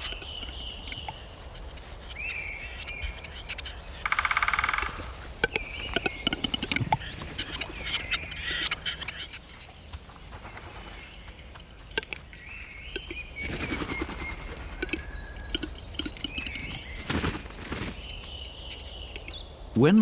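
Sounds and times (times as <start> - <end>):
birds chirping and singing: 0.0 - 20.0.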